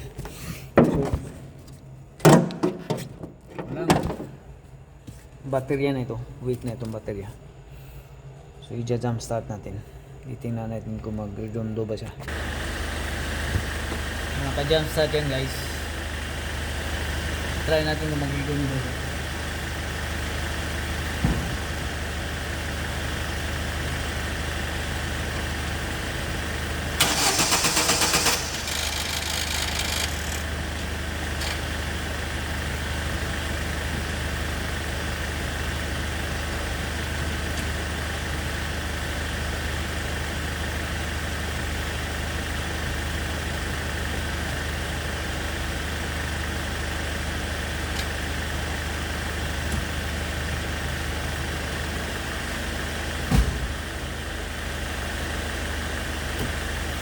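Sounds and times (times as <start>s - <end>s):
steady engine hum: 0.0s - 57.0s
starter motor cranking: 26.9s - 32.4s.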